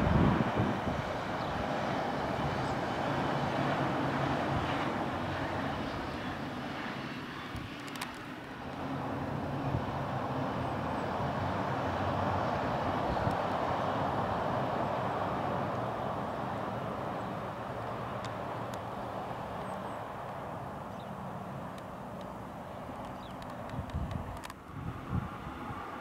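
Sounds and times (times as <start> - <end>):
distant train rumbling over viaduct: 0.0 - 26.0.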